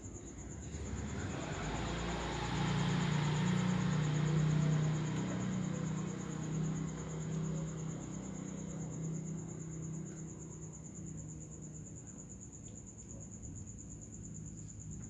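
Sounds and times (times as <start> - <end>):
vehicle engine idling: 0.3 - 11.5.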